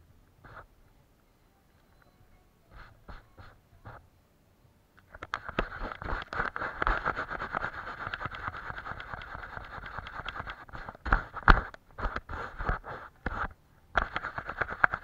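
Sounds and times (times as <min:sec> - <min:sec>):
paintbrush scrubbing a surface: 0:05.6 - 0:15.0.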